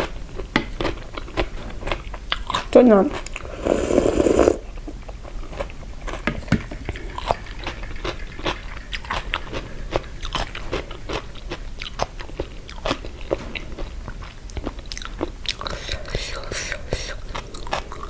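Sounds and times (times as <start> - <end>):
chewing and crunching food: 8.0 - 18.0.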